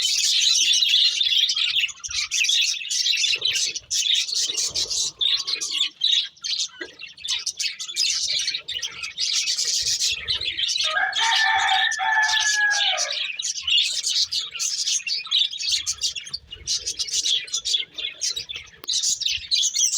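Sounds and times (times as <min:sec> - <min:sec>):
budgerigars chirping and chattering: 0:00.0 - 0:19.9.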